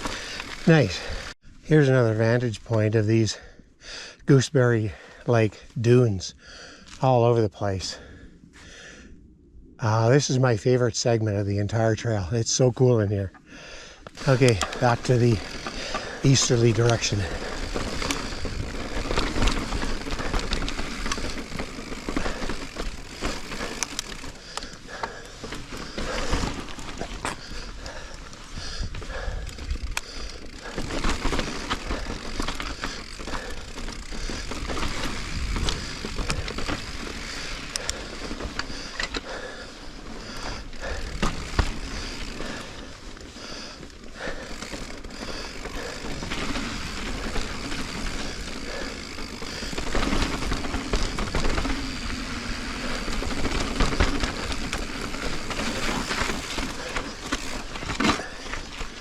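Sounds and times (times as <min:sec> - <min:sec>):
bike knocking and rattling: 0:00.0 - 0:01.3, 0:14.1 - 0:59.0
bike tyres rolling over rock: 0:00.0 - 0:01.3, 0:14.1 - 0:59.0.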